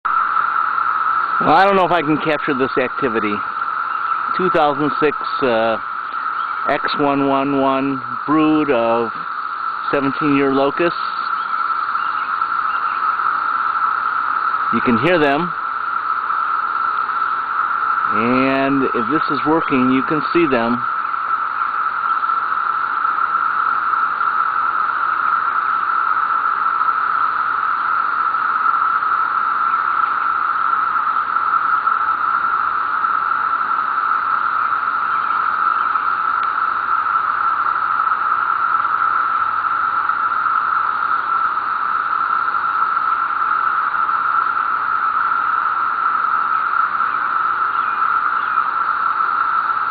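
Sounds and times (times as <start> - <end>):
cicadas droning: 0.0 - 49.9.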